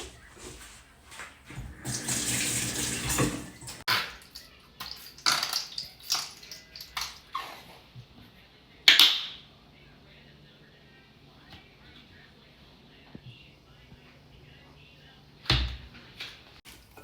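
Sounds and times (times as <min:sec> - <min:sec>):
clatters and splashes: 0:00.6 - 0:07.3
water running from tap: 0:01.0 - 0:07.1.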